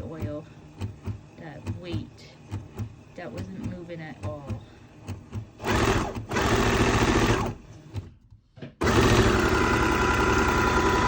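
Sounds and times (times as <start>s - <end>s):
electric sewing machine running: 0.0s - 7.7s, 8.8s - 11.0s.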